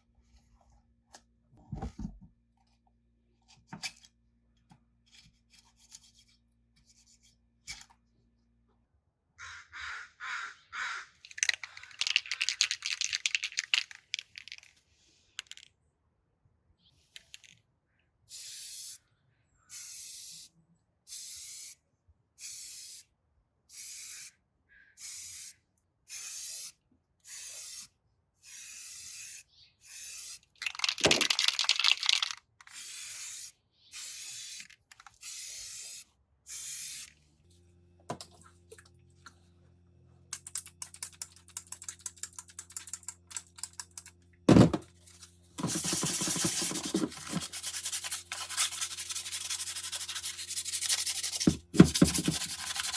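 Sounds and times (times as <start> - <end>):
scratchy rubbing: 45.6 - 52.9.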